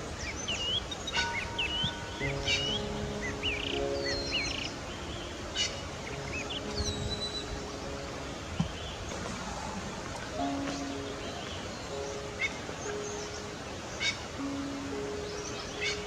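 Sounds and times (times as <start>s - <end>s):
birds chirping: 0.0s - 16.0s
steady outdoor hiss: 0.0s - 16.0s.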